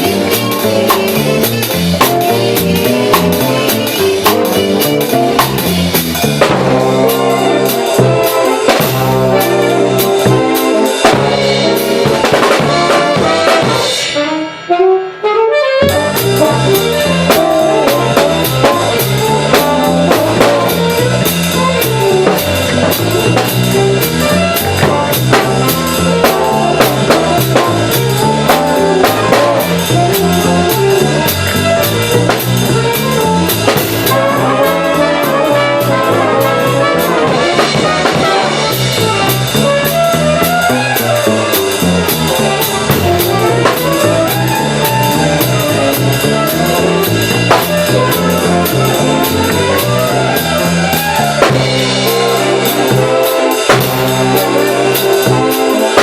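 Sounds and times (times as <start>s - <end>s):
jazz big band playing swing: 0.0s - 56.0s.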